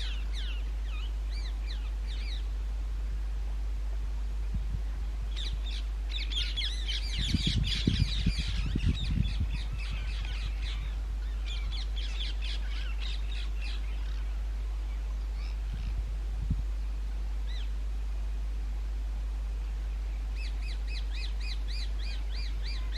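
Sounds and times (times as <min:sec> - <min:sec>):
parakeets screeching: 0:05.4 - 0:14.3.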